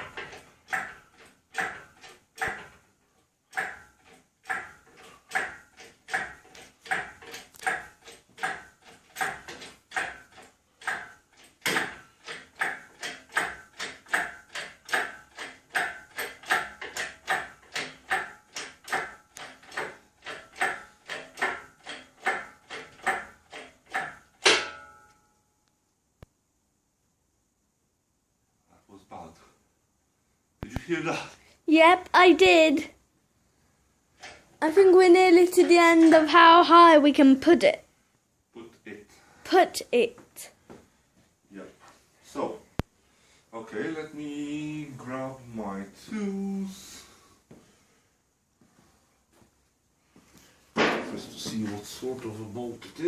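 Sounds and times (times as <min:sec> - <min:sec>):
hand pump metallic clicking: 0:00.0 - 0:02.8, 0:03.5 - 0:24.6
metal clank: 0:11.0 - 0:25.2.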